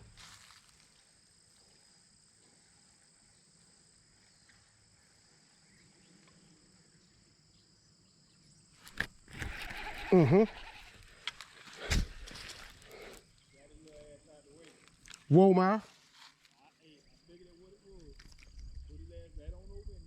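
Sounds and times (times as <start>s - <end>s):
high insect drone: 0.0s - 14.9s.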